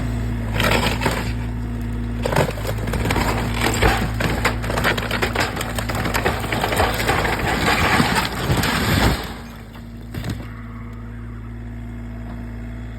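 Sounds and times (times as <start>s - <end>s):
excavator diesel engine running: 0.0s - 12.9s
crunching and cracking material: 2.2s - 10.4s.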